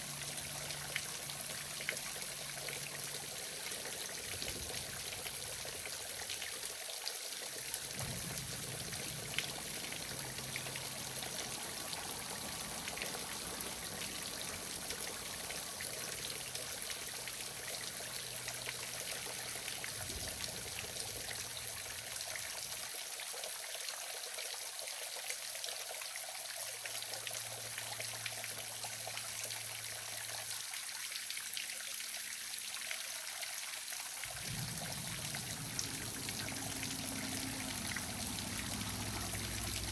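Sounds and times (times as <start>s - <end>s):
waterfall splashing: 7.8s - 17.5s, 34.2s - 39.9s.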